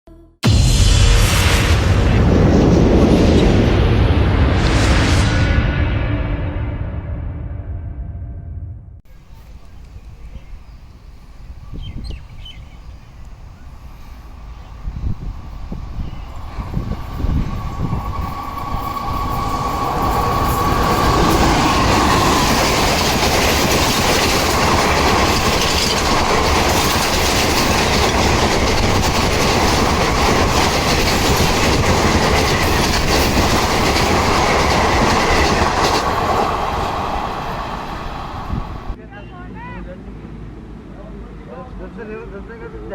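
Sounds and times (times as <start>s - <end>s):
train wheels clattering: 15.2s - 39.0s.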